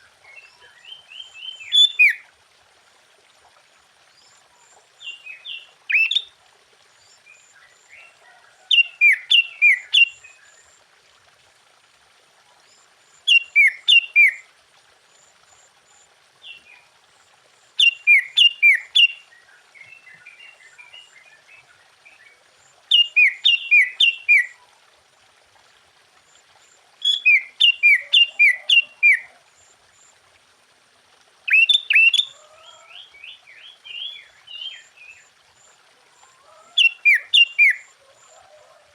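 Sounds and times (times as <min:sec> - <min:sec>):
bird singing whistled phrases: 0:01.4 - 0:02.2, 0:05.9 - 0:06.3, 0:13.3 - 0:14.4, 0:22.9 - 0:24.5, 0:31.5 - 0:32.3, 0:36.8 - 0:37.8.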